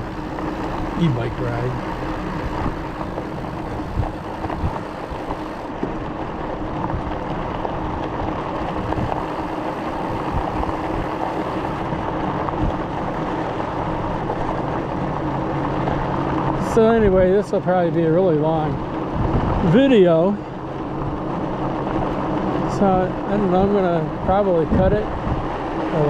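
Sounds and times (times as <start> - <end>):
faint steady hum: 0.0 - 5.8, 8.6 - 14.6
tyre noise on pavement: 0.0 - 16.4.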